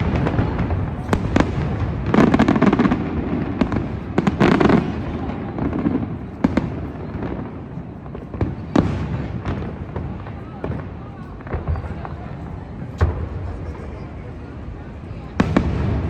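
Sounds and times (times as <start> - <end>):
fireworks bangs and crackling: 0.0 - 16.0.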